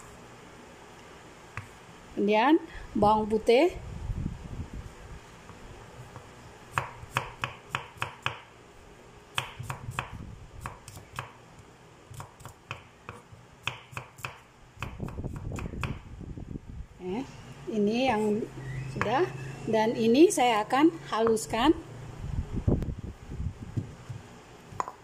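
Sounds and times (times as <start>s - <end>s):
knife chopping on wooden board: 12.1s - 16.0s.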